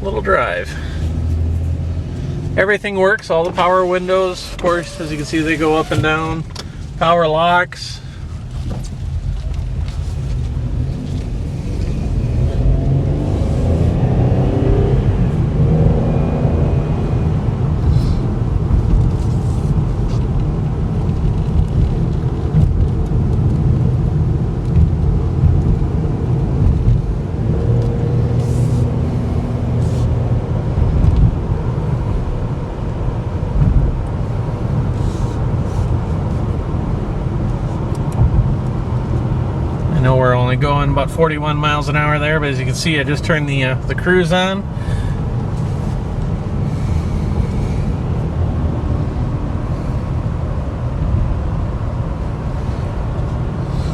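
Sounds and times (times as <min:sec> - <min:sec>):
car engine and road rumble: 0:00.0 - 0:53.9.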